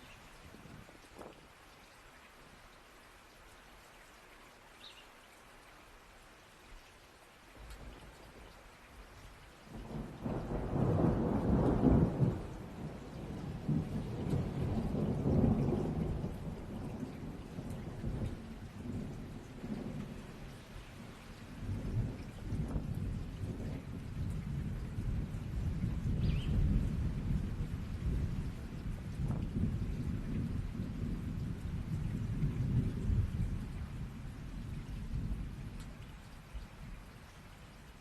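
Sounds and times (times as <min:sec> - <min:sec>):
steady rain: 0:00.0 - 0:38.0
thunder rolling: 0:09.8 - 0:20.0.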